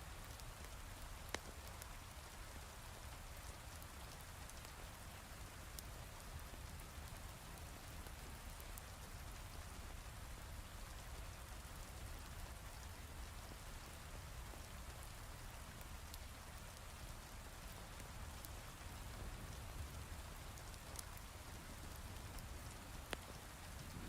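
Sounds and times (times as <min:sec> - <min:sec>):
single raindrop ticks: 0:18.4 - 0:24.0.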